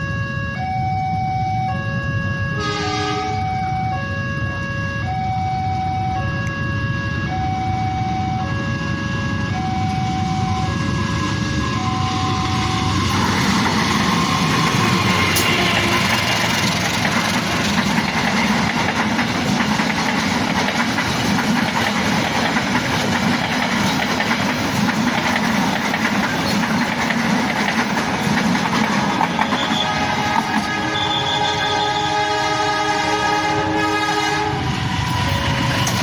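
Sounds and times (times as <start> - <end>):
electronic warning tone: 0.0 - 16.7
train passing: 0.0 - 36.0
wheels on rails: 8.4 - 31.8, 34.6 - 36.0.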